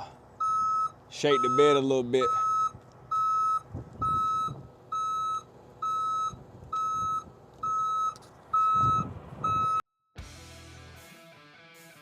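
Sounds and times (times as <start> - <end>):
low rumble of truck: 0.0 - 9.8
back-up alarm beeping: 0.4 - 9.8.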